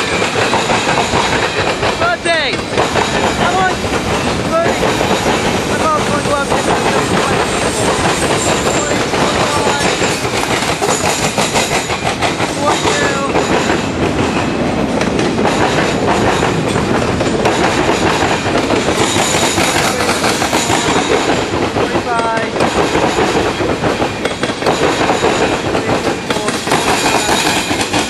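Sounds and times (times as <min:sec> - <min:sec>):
freight train rumbling past: 0:00.0 - 0:28.0
wheels clattering over rail joints: 0:00.0 - 0:28.0.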